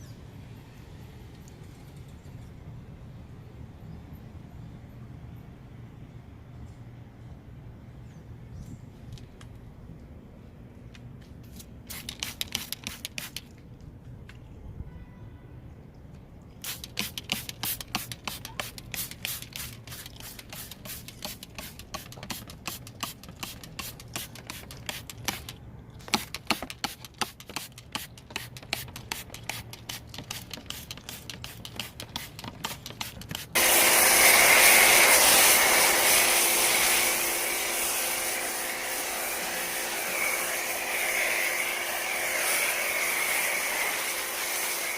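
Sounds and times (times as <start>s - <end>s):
brush scrubbing: 16.7s - 37.0s
loud spray hiss: 33.4s - 44.9s.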